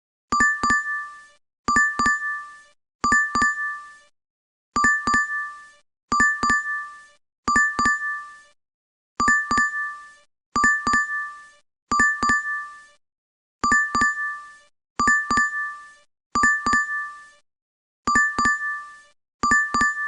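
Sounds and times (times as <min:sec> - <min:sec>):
double ding notification chime: 0:19.4 - 0:20.0.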